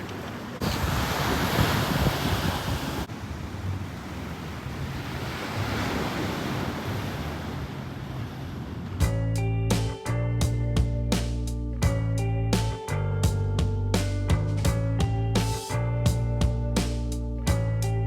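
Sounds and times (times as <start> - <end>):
sea waves: 0.0 - 9.0
wind buffeting microphone: 0.1 - 9.3.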